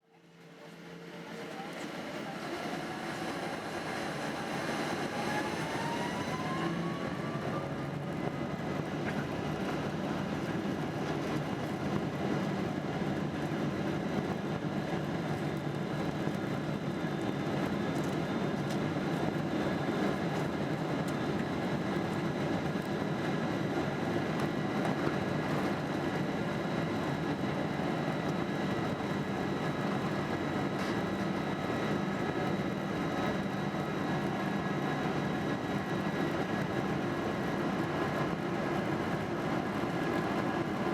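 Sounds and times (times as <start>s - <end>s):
jet engines spooling up: 0.7s - 11.5s.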